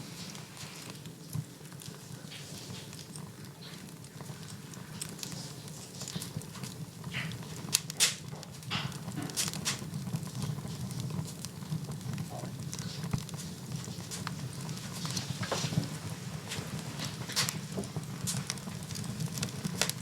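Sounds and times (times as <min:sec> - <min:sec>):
wood fire crackling: 0:00.0 - 0:20.0
loud pops of fire: 0:05.0 - 0:20.0.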